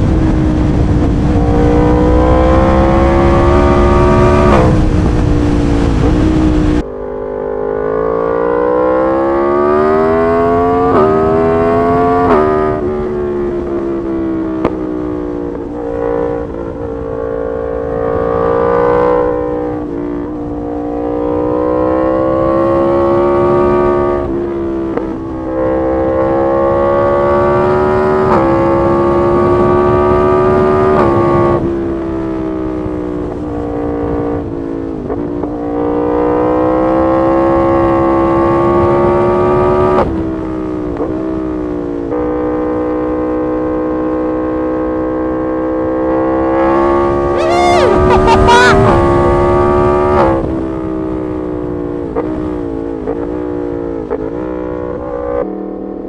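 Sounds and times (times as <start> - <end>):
motorcycle engine revving: 0.0 - 13.5, 46.8 - 49.2.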